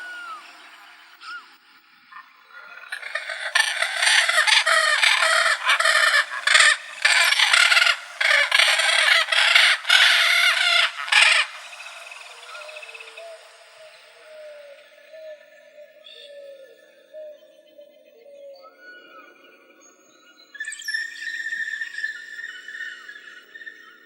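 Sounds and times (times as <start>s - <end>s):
parrot squawking: 2.9s - 13.1s.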